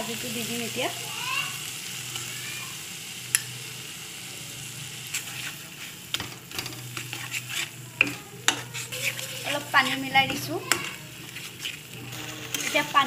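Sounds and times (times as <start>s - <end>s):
paste frying and sizzling: 0.0s - 13.0s
metal spatula scraping pan: 5.1s - 13.0s.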